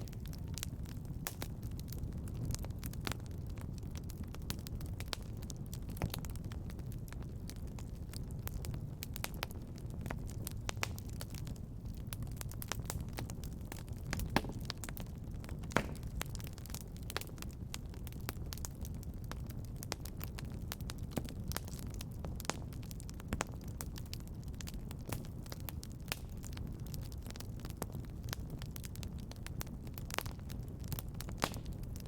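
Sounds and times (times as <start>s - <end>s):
fire crackling and popping: 0.0s - 32.0s.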